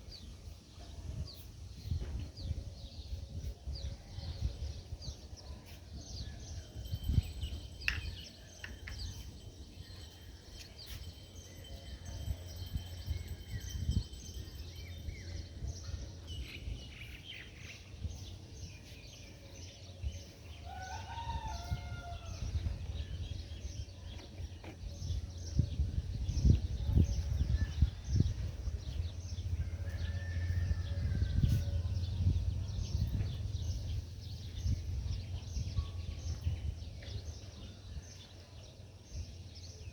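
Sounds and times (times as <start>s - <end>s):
birds chirping: 6.6s - 19.9s.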